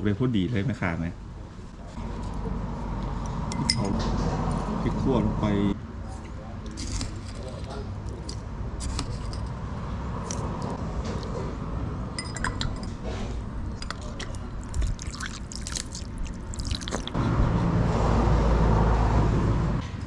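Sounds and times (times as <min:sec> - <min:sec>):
utensils clinking on bowl and glass: 0:03.5 - 0:04.0, 0:06.7 - 0:09.6, 0:12.2 - 0:13.1, 0:13.7 - 0:16.0.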